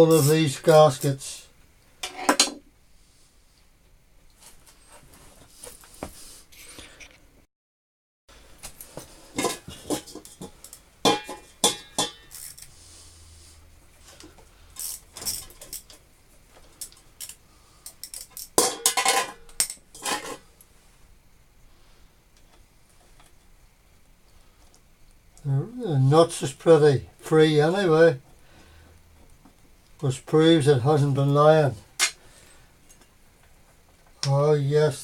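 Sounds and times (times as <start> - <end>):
metal tools clinking: 0.0 - 1.2, 11.1 - 12.7, 14.8 - 16.0.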